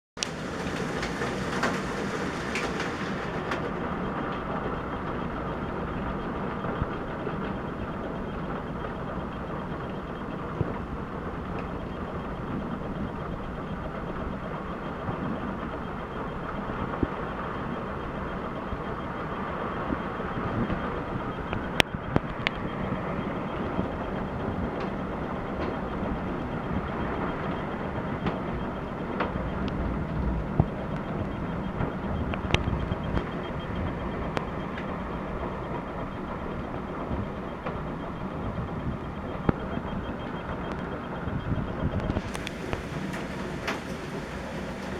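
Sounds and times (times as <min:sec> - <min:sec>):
heavy rain: 0:00.2 - 0:06.7, 0:42.2 - 0:44.9
wind: 0:00.2 - 0:44.9.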